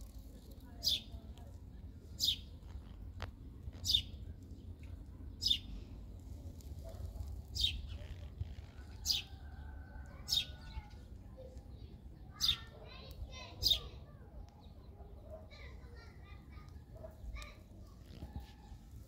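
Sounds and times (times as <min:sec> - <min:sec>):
bird chirping: 0:03.8 - 0:04.2.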